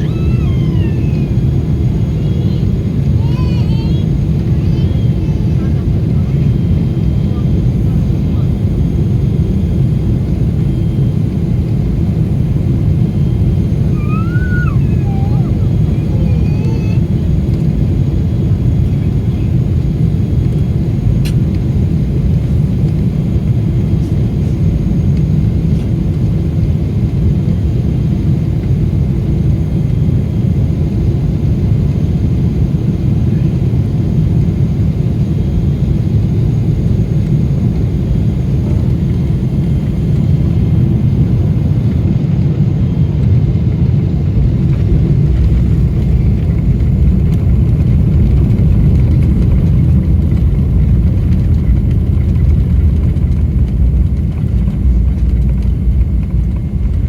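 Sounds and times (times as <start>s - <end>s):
faint steady whine: 0.0s - 26.2s
airliner cabin rumble: 0.0s - 57.0s.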